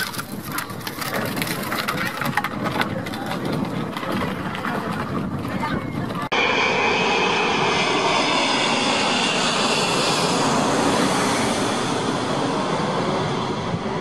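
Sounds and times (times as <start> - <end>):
jet engines passing overhead: 3.9 - 14.0.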